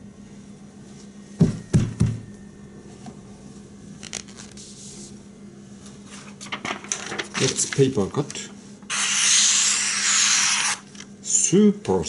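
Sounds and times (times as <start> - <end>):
dull knocks: 1.4 - 2.2.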